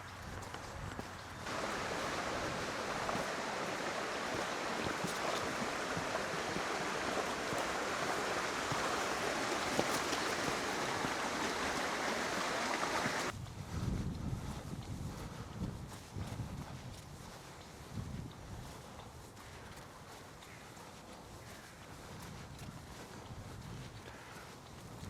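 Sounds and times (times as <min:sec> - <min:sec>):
hail pelting down: 0:01.5 - 0:13.3.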